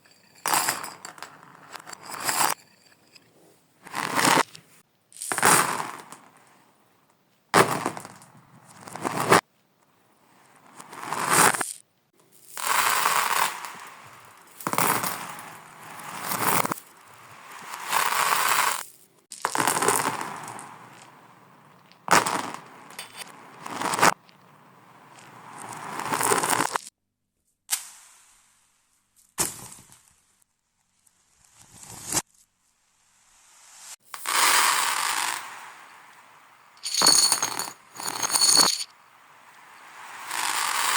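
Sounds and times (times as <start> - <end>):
reversed marbles rolling and clinking: 0.0 - 4.6, 10.9 - 21.1, 25.1 - 26.9, 34.1 - 40.9
marbles rattling along track: 12.6 - 13.8, 36.8 - 38.9, 40.2 - 40.9.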